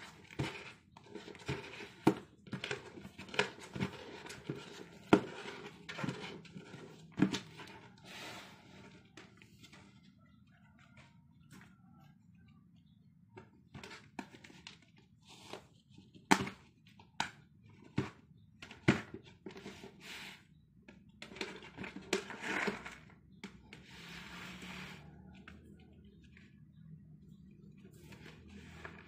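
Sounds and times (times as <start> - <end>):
scraping and rustling: 0.0 - 11.7, 21.2 - 29.0.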